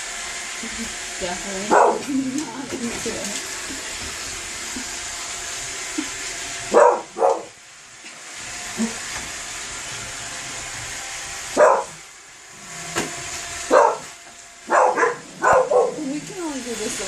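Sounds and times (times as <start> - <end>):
robot vacuum whirring: 0.4 - 7.5, 8.2 - 17.0
dog barking: 1.7 - 2.1, 6.7 - 7.5, 11.6 - 12.0, 13.7 - 14.1, 14.7 - 16.0.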